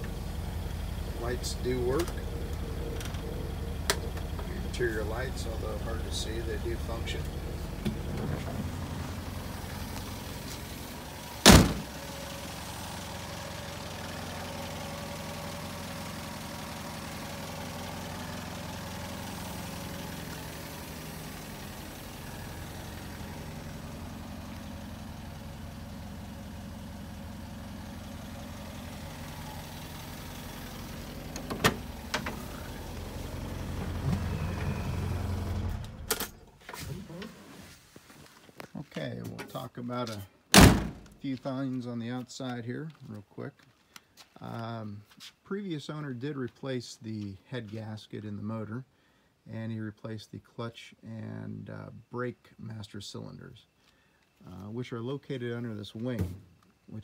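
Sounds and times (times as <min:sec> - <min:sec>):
car engine idling: 0:00.0 - 0:36.6
car door slamming: 0:11.4 - 0:12.0, 0:31.3 - 0:32.7, 0:40.5 - 0:41.1.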